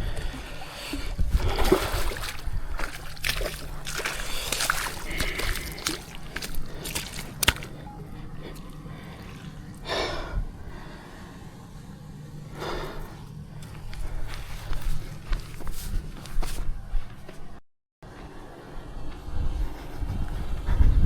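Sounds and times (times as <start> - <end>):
water splashing: 0.0 - 10.2
person breathing out hard: 0.0 - 11.8, 12.5 - 15.4.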